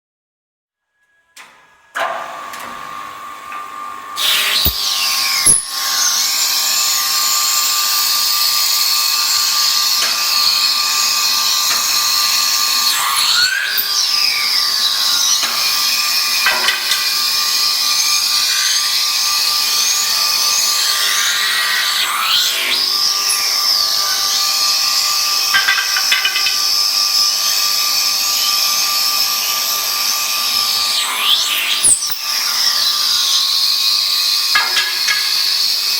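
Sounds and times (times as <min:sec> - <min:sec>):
woodworking machine whining: 0:04.1 - 0:35.9
sharp knocks: 0:25.6 - 0:26.7.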